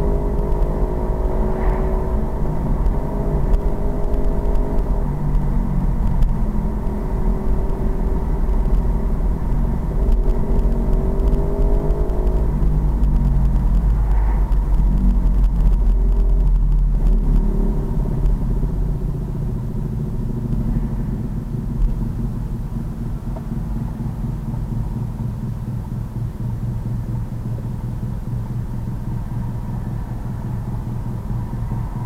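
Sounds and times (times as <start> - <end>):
pit bike engine accelerating: 0.0 - 18.6
heavy low rumble: 0.0 - 32.0.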